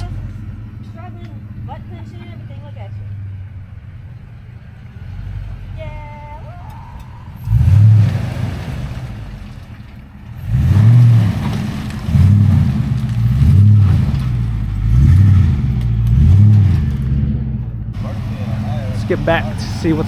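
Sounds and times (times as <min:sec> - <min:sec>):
off-road vehicle engine revving: 0:00.0 - 0:20.0.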